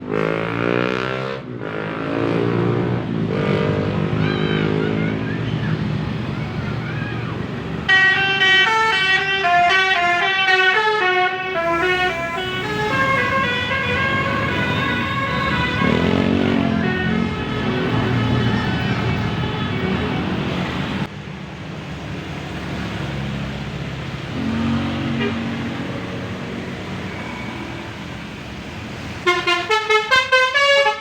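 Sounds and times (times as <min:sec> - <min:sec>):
bus engine passing: 0:00.0 - 0:31.0
air horns playing stepped tune: 0:07.9 - 0:19.0, 0:29.2 - 0:31.0.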